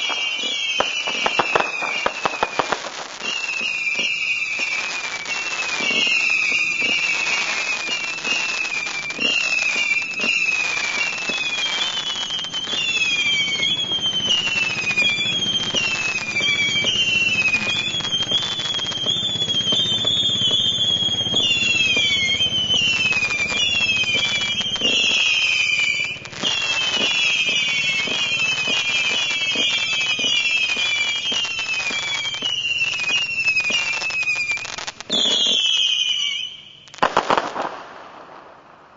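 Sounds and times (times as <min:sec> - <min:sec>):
firework whistles sliding down: 0:00.0 - 0:38.7
firework crackle: 0:00.0 - 0:38.9
sharp firework pops: 0:00.0 - 0:38.9.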